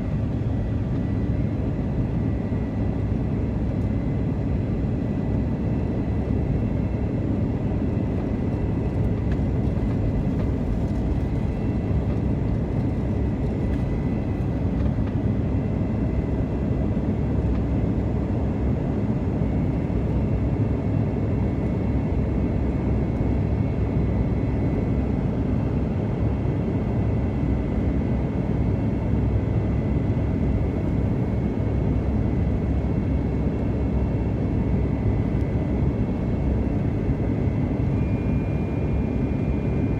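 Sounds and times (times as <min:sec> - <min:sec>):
airliner engines rumbling: 0:00.0 - 0:39.9.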